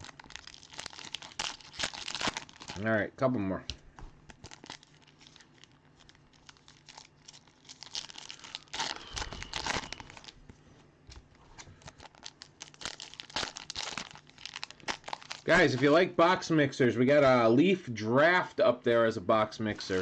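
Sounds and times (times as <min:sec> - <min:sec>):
card pack wrappers tearing and crinkling: 0:00.0 - 0:02.9, 0:04.2 - 0:10.4, 0:11.6 - 0:15.9.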